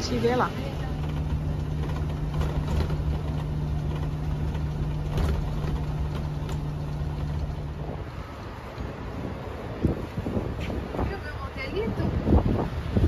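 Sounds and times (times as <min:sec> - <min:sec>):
vehicle engine and road drone: 0:00.0 - 0:13.0
light knocks and rattles: 0:00.4 - 0:08.2.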